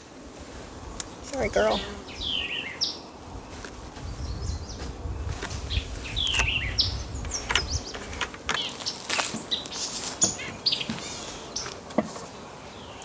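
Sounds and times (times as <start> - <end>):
small birds chirping: 0.9 - 13.0
sharp clicks and knocks: 7.2 - 9.5.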